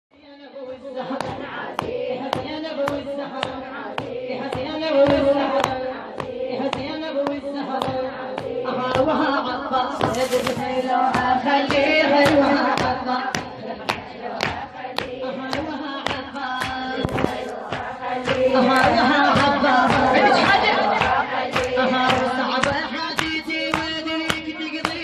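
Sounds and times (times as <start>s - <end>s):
woman singing a chant: 0.1s - 25.0s
rhythmic hand beats: 0.7s - 25.0s.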